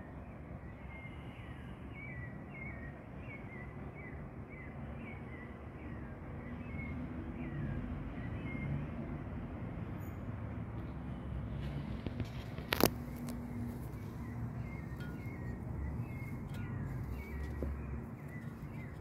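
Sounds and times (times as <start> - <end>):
low traffic rumble: 0.0 - 19.0
bird chirping: 12.1 - 19.0.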